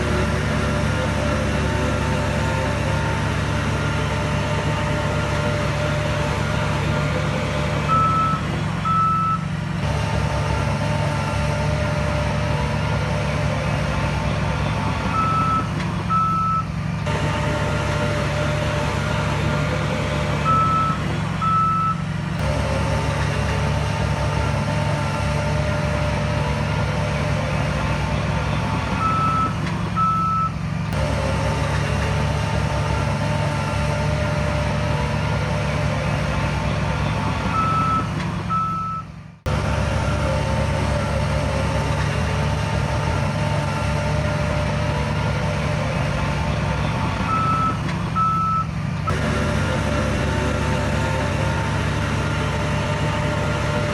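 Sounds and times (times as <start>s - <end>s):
diesel earthmoving machinery running: 0.0s - 53.9s
reversing alarm beeps: 7.9s - 9.4s, 15.1s - 16.7s, 20.5s - 22.0s, 29.0s - 30.6s, 37.5s - 39.1s, 47.3s - 48.7s.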